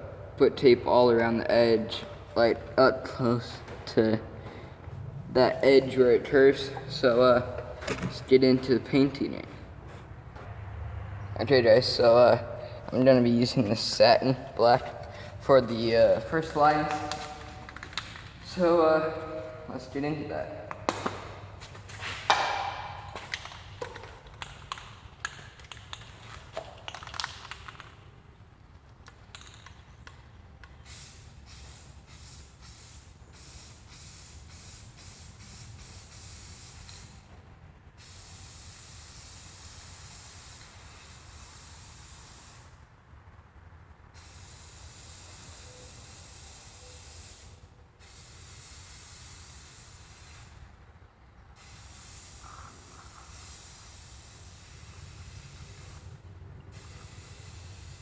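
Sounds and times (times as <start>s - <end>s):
spray can hissing: 30.8s - 37.3s, 38.0s - 42.8s, 44.2s - 50.6s, 51.6s - 56.1s, 56.7s - 58.0s.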